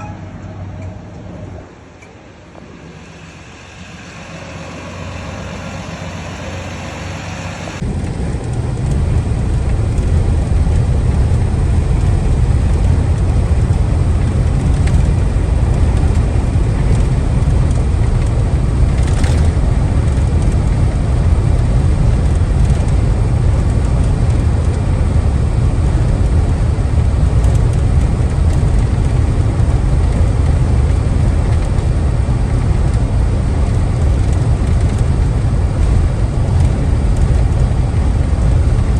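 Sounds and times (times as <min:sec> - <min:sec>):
truck engine and road noise: 0:00.0 - 0:38.9.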